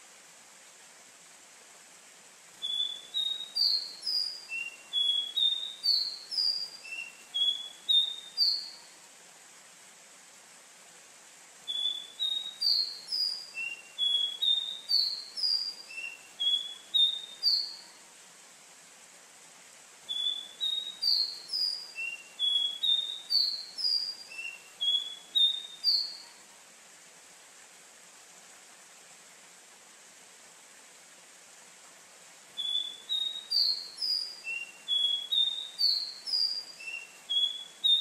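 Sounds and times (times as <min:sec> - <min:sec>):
faint hiss: 0:00.0 - 0:38.0
bird singing whistled notes: 0:02.6 - 0:08.9, 0:11.7 - 0:18.0, 0:20.1 - 0:26.4, 0:32.6 - 0:38.0.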